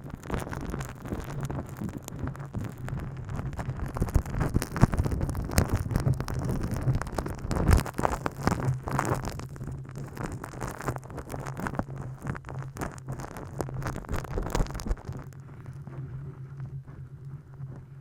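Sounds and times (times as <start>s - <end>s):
rubbing and tapping on microphone: 0.0s - 18.0s
steady low hum: 11.6s - 18.0s.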